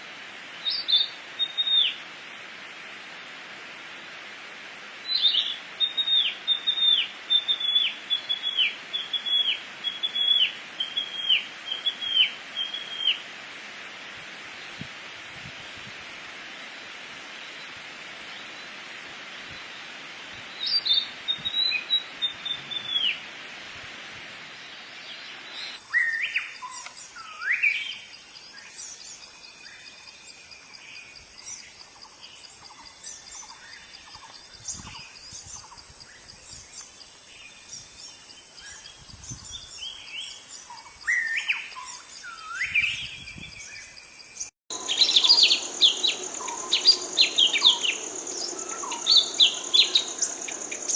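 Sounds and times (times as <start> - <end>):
birds singing and chirping: 31.0 - 50.9
high insect drone: 43.3 - 50.9.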